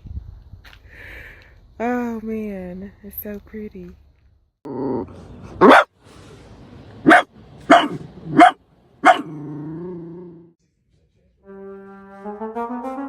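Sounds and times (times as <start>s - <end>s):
dog barking: 5.6s - 5.9s, 7.0s - 9.4s.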